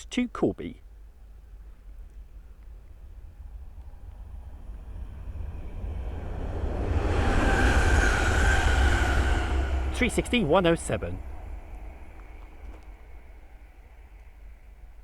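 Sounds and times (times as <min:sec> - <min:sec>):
electric train passing at speed: 0:01.9 - 0:15.0
rush of train wheels: 0:02.8 - 0:15.0
train motor whine: 0:03.0 - 0:14.3.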